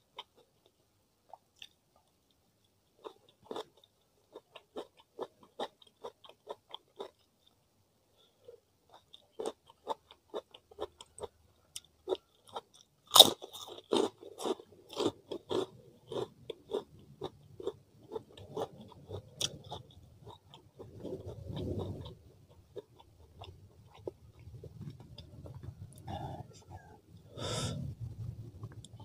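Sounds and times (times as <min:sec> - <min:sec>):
chewing crunchy food: 0:02.9 - 0:07.6, 0:08.9 - 0:26.1.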